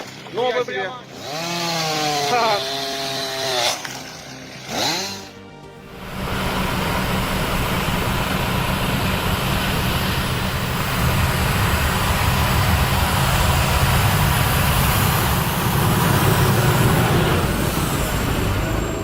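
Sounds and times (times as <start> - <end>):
heavy machinery engine running: 4.7 - 19.0.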